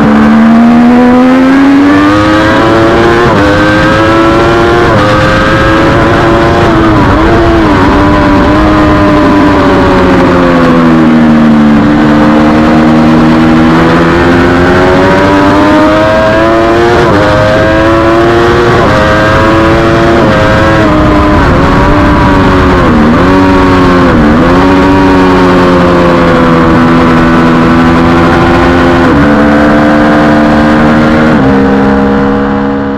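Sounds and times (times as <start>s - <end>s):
motorcycle engine at high revs: 0.0s - 32.9s.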